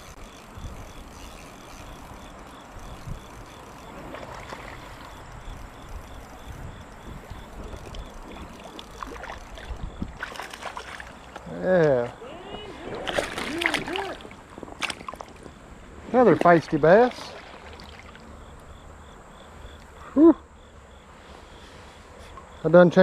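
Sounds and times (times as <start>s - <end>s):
wind rumble on microphone: 0.0s - 10.3s
creek water: 0.0s - 22.5s
wading in water: 1.9s - 18.8s
water splashing: 3.9s - 5.1s, 7.6s - 18.4s.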